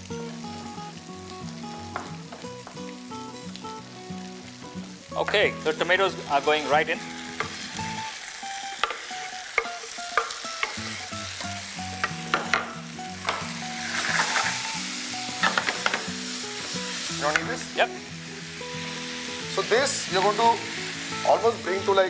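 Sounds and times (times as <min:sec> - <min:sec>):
tomatoes sizzling in a hot pan: 0:00.0 - 0:22.0
spatula clicks against pan: 0:08.8 - 0:10.8.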